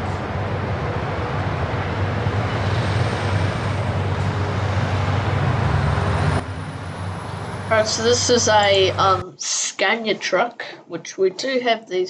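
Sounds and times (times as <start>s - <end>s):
heavy trucks driving past: 0.0s - 9.2s.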